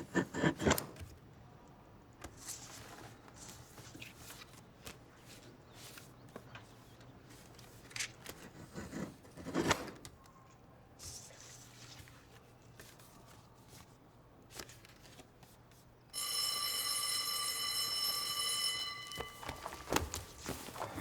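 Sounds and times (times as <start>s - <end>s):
rustling with clicks and scrapes: 19.0s - 21.0s.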